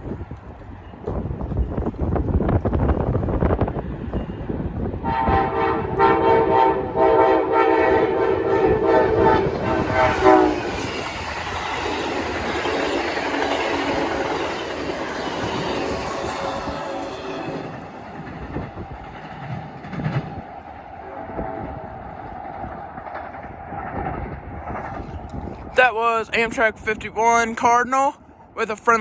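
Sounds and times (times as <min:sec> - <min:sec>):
train cars rumbling on rails: 0:00.0 - 0:27.1
train air horn: 0:05.0 - 0:10.9.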